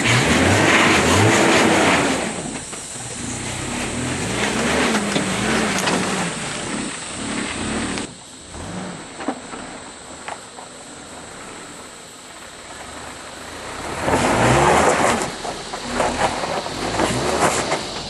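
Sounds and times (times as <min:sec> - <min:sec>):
loud rush of noise: 0:00.0 - 0:10.2
car engine revving: 0:00.0 - 0:18.0.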